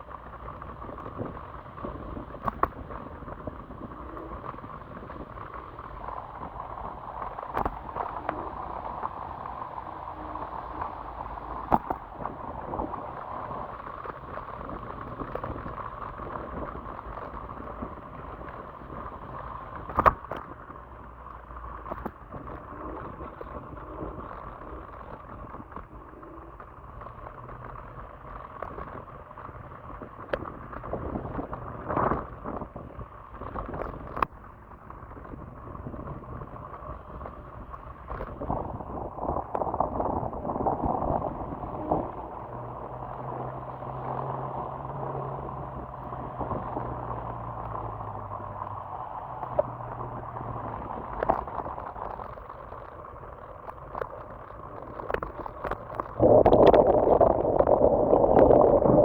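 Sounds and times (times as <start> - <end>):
electric scooter rushing noise: 0.0 - 59.0
wind buffeting microphone: 28.6 - 59.0.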